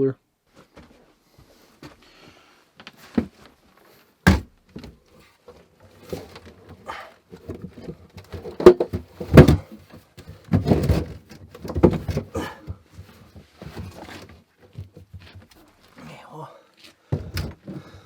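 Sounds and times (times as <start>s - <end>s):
cooler knocking and scraping: 4.3s - 15.6s, 17.2s - 18.0s.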